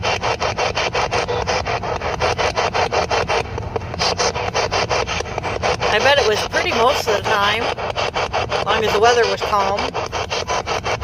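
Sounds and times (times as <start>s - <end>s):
choppy radio static bursts: 0.0s - 11.0s.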